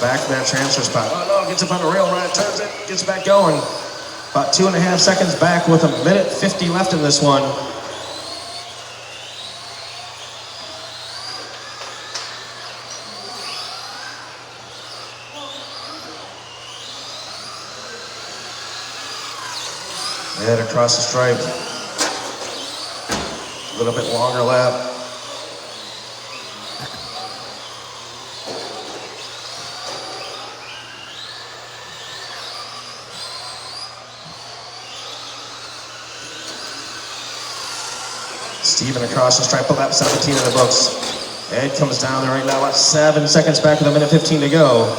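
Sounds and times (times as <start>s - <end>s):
electric motors whining: 0.0s - 44.9s.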